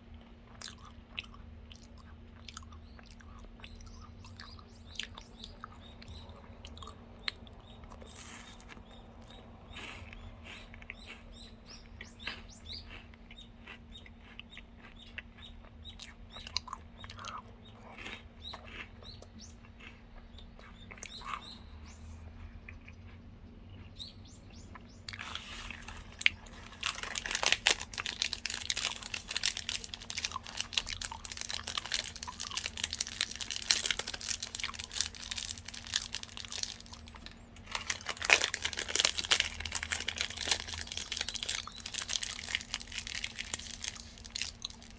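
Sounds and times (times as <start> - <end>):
chewing crunchy food: 0.0 - 44.9
plastic wrapper crinkling: 25.2 - 44.9.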